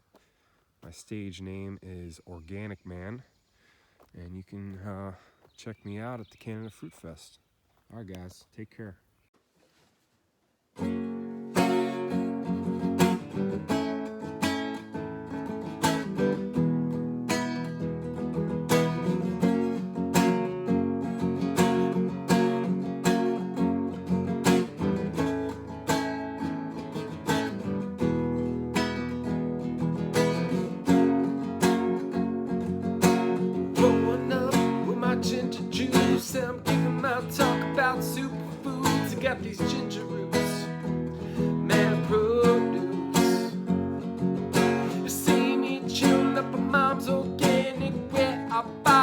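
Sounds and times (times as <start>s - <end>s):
strummed acoustic guitar chords: 10.8s - 49.0s.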